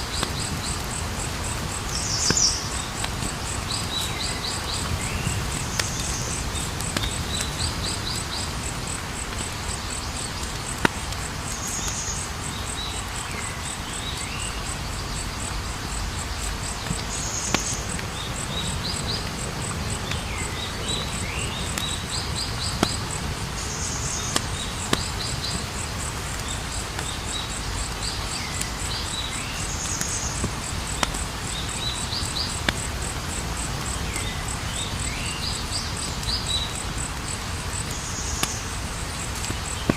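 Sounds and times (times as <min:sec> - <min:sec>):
campfire burning: 0:00.0 - 0:39.9
insect trill: 0:00.0 - 0:39.9
crackling wood pops: 0:10.2 - 0:12.0, 0:22.7 - 0:23.2, 0:24.3 - 0:25.7, 0:29.8 - 0:31.3, 0:39.2 - 0:39.9.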